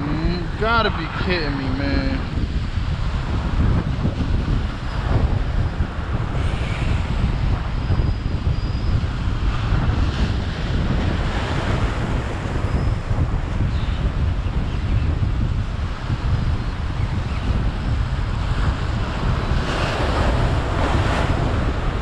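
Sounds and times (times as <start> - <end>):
surf washing: 0.0 - 7.9, 17.6 - 22.0
wind buffeting microphone: 0.0 - 22.0.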